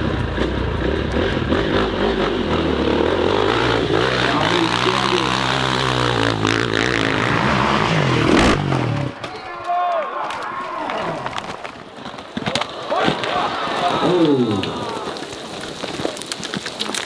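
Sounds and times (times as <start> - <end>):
dirt bike engine revving: 0.0 - 9.2.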